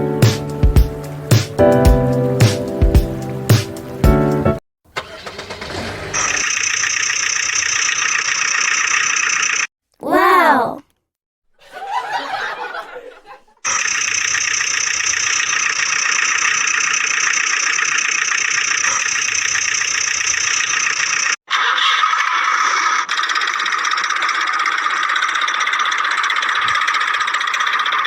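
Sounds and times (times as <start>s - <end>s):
mini tractor engine running: 13.7s - 28.0s.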